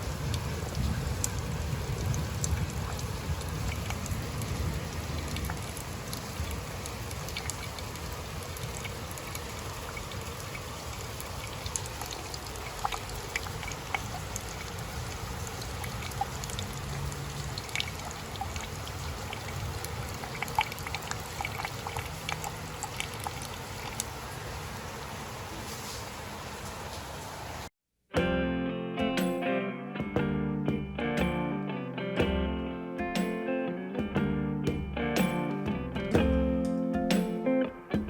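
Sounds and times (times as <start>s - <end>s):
small drips and ticks: 0.0s - 24.5s
water trickling: 0.0s - 25.3s.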